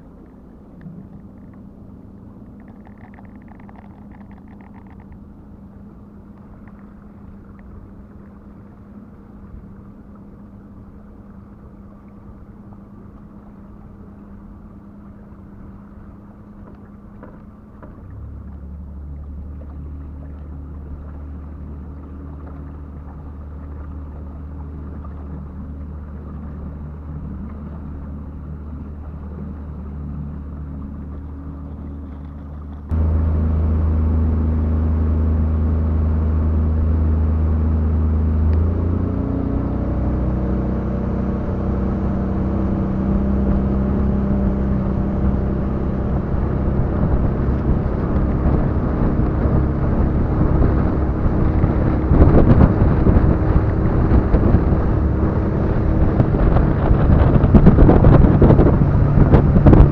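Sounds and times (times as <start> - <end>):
boat motor running: 0.0 - 59.9
wind noise on microphone: 32.9 - 59.9.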